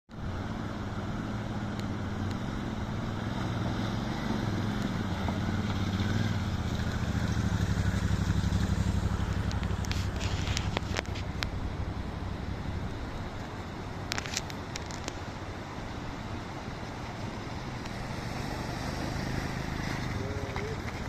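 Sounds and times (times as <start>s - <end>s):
motorcycle engine running: 4.9s - 13.3s.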